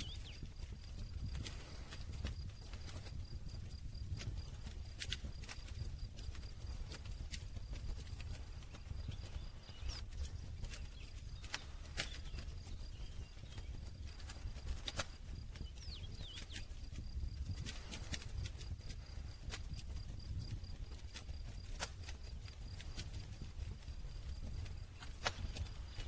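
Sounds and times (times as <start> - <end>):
campfire crackling: 0.0 - 26.0.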